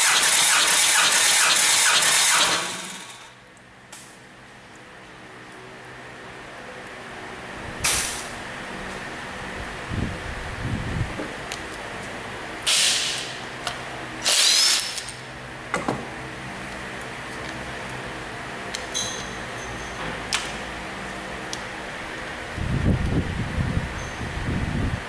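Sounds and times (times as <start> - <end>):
steady machine hum: 0.0 - 25.0
air hissing bursts: 12.7 - 13.4.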